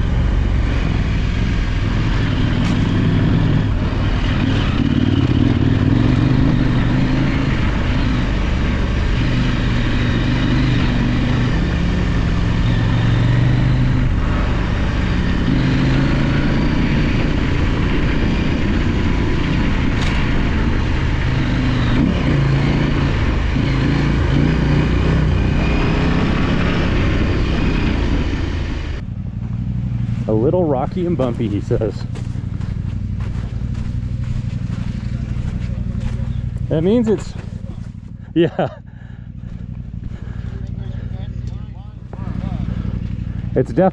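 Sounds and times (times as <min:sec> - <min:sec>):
motorcycle engine revving: 0:00.0 - 0:43.9
tyre noise on dirt: 0:29.4 - 0:43.6.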